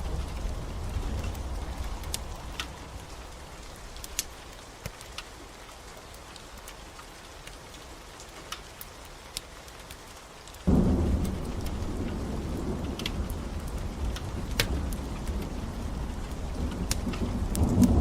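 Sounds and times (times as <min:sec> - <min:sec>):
low thunder rumble: 0:00.0 - 0:03.6, 0:10.7 - 0:18.0
log fire crackling: 0:00.0 - 0:18.0
steady rain falling: 0:00.0 - 0:18.0.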